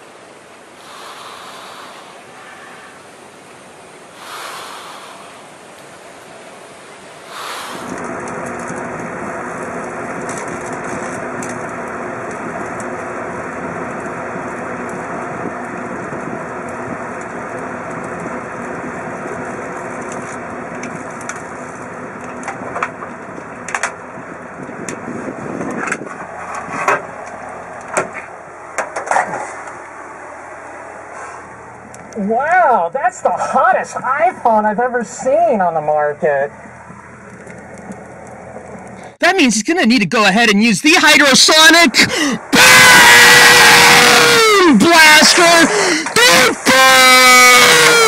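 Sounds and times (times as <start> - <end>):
microwave oven humming: 5.7 - 26.4
sharp pops and crackles: 7.3 - 29.8, 36.7 - 39.2.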